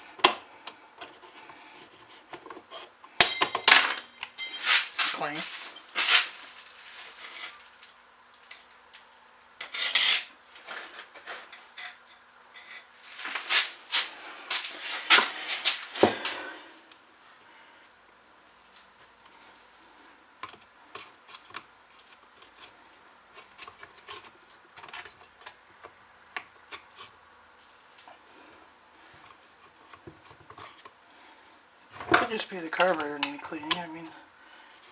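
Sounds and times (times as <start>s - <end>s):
tools clicking and tapping: 3.2s - 5.1s.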